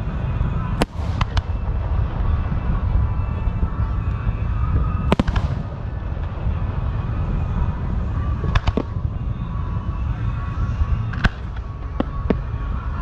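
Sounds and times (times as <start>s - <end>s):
fireworks cracking: 0.0s - 9.2s
low rumble: 0.0s - 13.0s.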